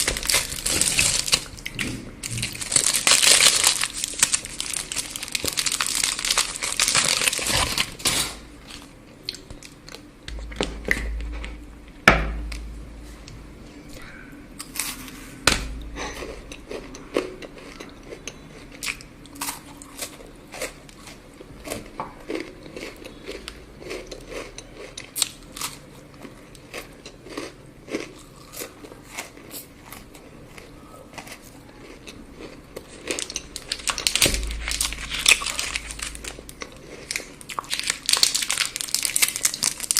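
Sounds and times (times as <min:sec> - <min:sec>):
wrapper crinkling: 0:00.0 - 0:01.6, 0:02.2 - 0:08.9, 0:33.2 - 0:39.9
crunchy chewing of chocolate: 0:00.0 - 0:11.6, 0:13.8 - 0:39.9.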